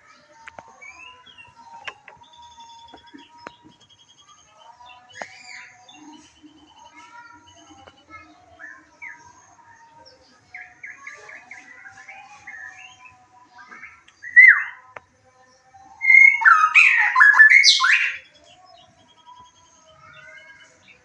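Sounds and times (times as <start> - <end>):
bird singing whistled notes: 14.2 - 14.8, 15.9 - 20.7.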